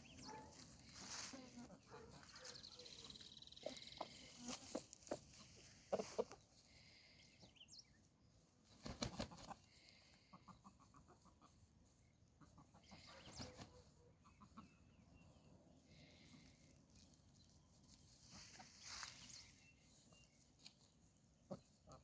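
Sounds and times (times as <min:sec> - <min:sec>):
rustling in grass: 0:00.0 - 0:07.1, 0:15.6 - 0:21.9
soft ticking clucks: 0:03.6 - 0:06.5, 0:10.3 - 0:15.0.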